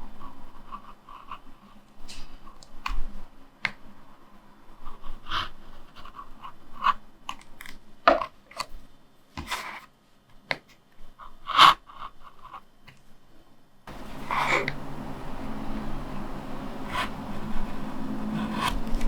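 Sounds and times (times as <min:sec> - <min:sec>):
steady background hiss: 0:00.0 - 0:19.0
cutter scraping linoleum: 0:13.9 - 0:15.0, 0:15.8 - 0:19.0.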